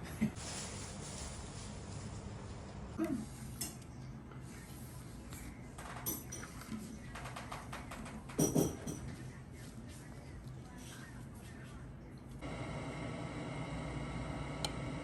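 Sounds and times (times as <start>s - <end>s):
dishes and utensils clinking: 5.9s - 7.1s, 8.2s - 9.2s.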